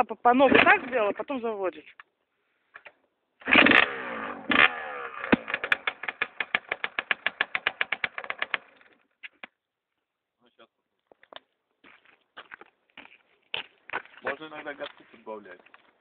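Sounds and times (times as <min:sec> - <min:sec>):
motorcycle engine starting and revving: 0:03.4 - 0:09.0.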